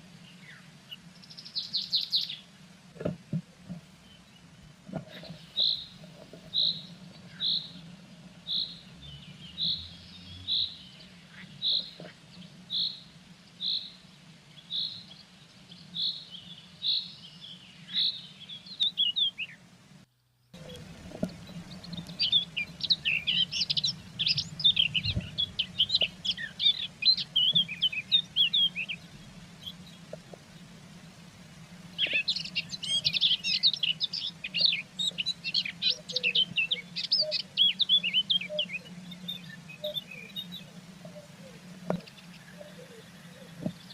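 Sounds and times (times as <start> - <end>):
faint low hum: 0.0 - 43.9
blue tit calls: 20.6 - 30.0, 32.0 - 43.9
rapid high twittering: 20.6 - 30.9, 31.9 - 43.9.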